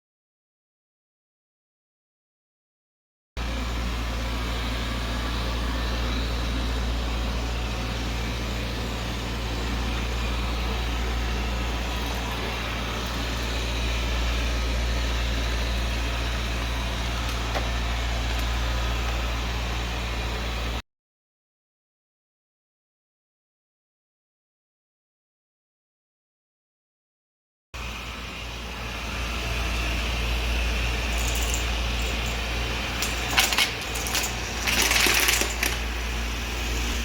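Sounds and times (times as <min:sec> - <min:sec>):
robot vacuum whirring hum: 0:03.4 - 0:20.8, 0:27.8 - 0:37.0.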